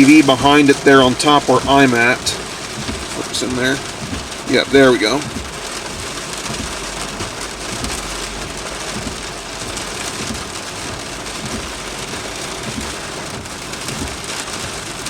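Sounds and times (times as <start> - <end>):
low rumble: 0.0 - 12.0
steady rain hiss: 0.0 - 15.0.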